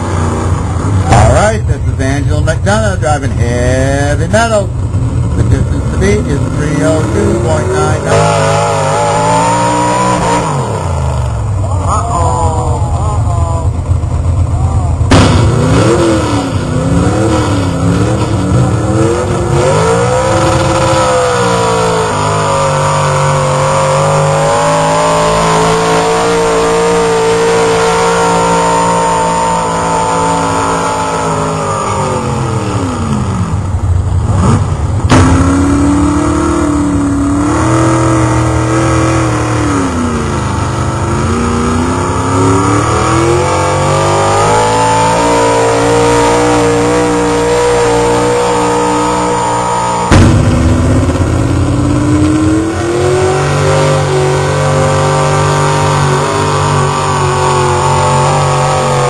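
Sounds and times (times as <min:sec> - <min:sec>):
truck engine revving under load: 0:00.0 - 0:59.0
sharp crack: 0:15.0 - 0:22.5, 0:35.0 - 0:35.8, 0:50.1 - 0:54.0.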